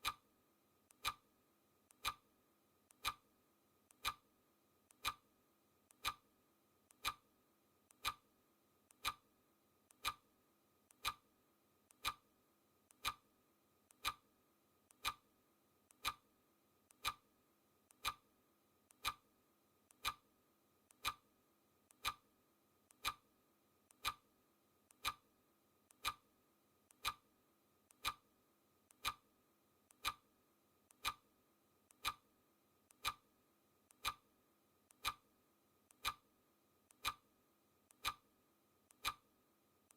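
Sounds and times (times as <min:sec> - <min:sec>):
clock ticking: 0:00.0 - 0:00.2, 0:00.9 - 0:01.2, 0:01.9 - 0:02.3, 0:02.9 - 0:03.2, 0:03.9 - 0:04.2, 0:04.9 - 0:05.2, 0:05.9 - 0:06.2, 0:06.9 - 0:07.2, 0:07.9 - 0:08.2, 0:08.9 - 0:09.2, 0:09.9 - 0:10.2, 0:10.9 - 0:11.2, 0:11.9 - 0:12.3, 0:12.9 - 0:13.3, 0:13.9 - 0:14.3, 0:14.9 - 0:15.3, 0:15.9 - 0:16.3, 0:16.9 - 0:17.3, 0:17.9 - 0:18.3, 0:18.9 - 0:19.3, 0:19.9 - 0:20.3, 0:20.9 - 0:21.3, 0:21.9 - 0:22.3, 0:22.9 - 0:23.3, 0:23.9 - 0:24.3, 0:24.9 - 0:25.3, 0:25.9 - 0:26.3, 0:26.9 - 0:27.3, 0:27.9 - 0:28.3, 0:28.9 - 0:29.3, 0:29.9 - 0:30.3, 0:30.9 - 0:31.3, 0:31.9 - 0:32.3, 0:32.9 - 0:33.3, 0:33.9 - 0:34.3, 0:34.9 - 0:35.3, 0:35.9 - 0:36.3, 0:36.9 - 0:37.3, 0:37.9 - 0:38.3, 0:38.9 - 0:39.3.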